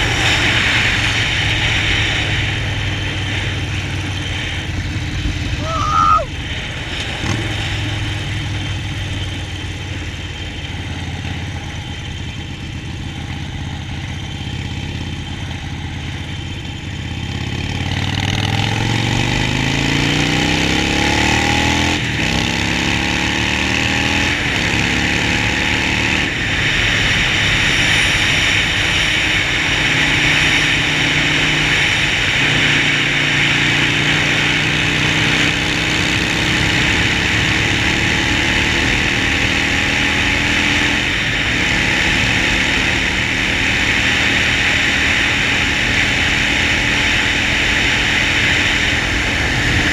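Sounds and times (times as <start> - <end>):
wind rushing over microphone: 0.0 - 10.2, 23.9 - 49.9
motorcycle engine revving: 0.0 - 49.9.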